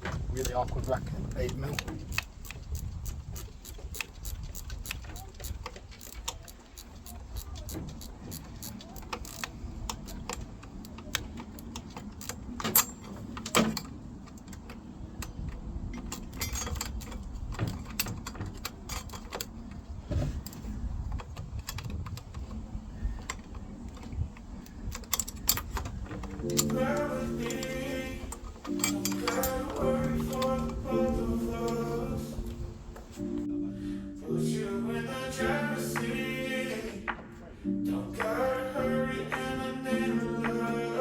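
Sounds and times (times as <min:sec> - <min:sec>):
hand tools clicking on metal: 0:00.0 - 0:32.6.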